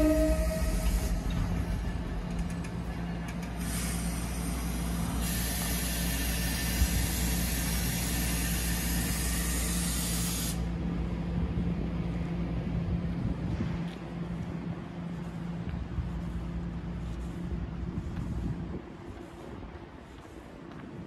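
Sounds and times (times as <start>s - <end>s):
electric locomotive humming: 0.0s - 20.8s
compressed air hissing: 3.6s - 10.7s.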